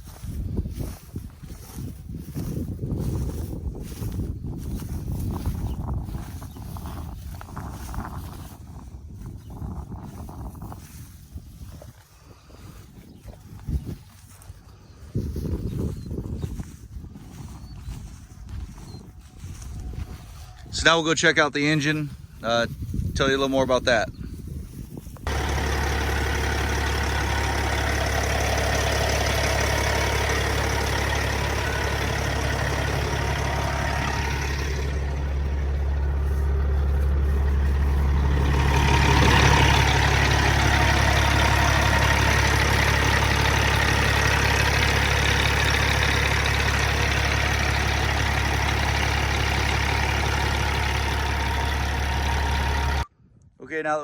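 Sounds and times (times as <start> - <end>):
truck diesel engine idling: 0.0 - 9.3, 25.3 - 53.1.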